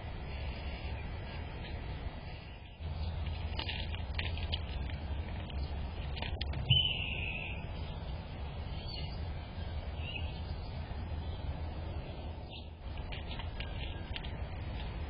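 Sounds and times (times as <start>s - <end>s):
steady low rumble: 0.0s - 15.0s
bird calling: 6.6s - 8.0s.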